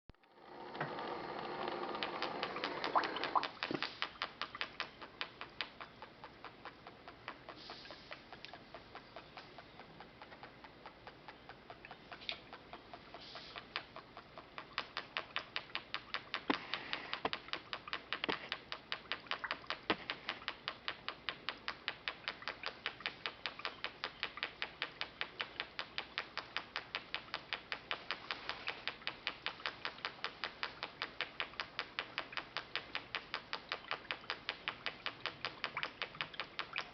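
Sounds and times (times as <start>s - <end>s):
pop-pop boat motor popping: 0.1s - 36.9s
water bubbling: 1.8s - 8.8s, 11.2s - 20.4s, 27.3s - 36.9s.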